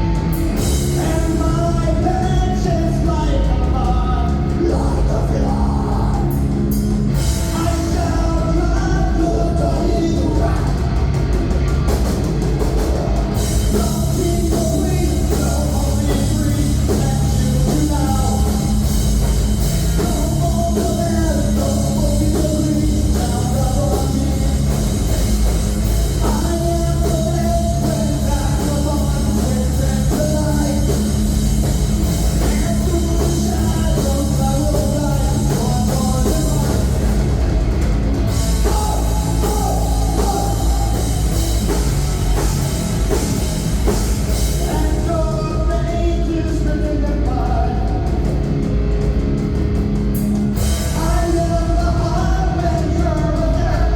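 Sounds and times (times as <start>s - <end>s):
rock band playing live: 0.0s - 53.9s
person singing: 38.6s - 41.9s, 44.5s - 48.4s.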